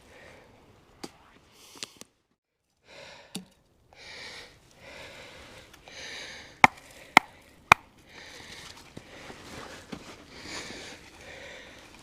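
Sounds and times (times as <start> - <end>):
hatchet striking wood: 6.6 - 7.9.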